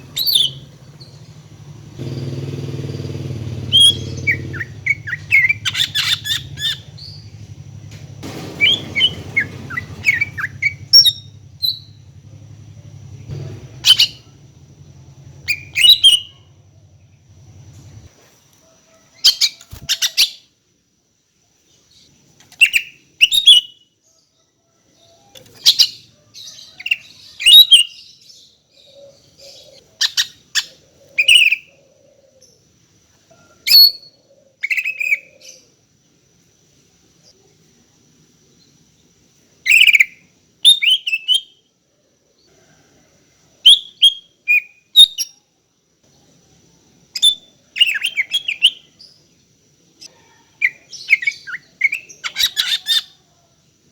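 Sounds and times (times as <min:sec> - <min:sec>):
bird chirping and whistling: 0:00.0 - 0:01.2, 0:03.6 - 0:07.3, 0:08.3 - 0:12.0, 0:13.8 - 0:14.3, 0:15.4 - 0:16.4, 0:39.7 - 0:41.6, 0:47.2 - 0:48.8, 0:50.7 - 0:53.1.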